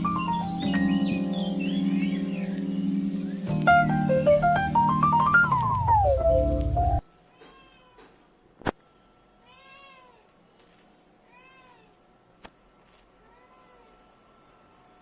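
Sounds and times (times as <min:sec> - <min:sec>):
background music: 0:00.0 - 0:07.0
cat meowing: 0:07.3 - 0:08.2, 0:09.4 - 0:10.3, 0:11.2 - 0:12.0, 0:13.2 - 0:14.0.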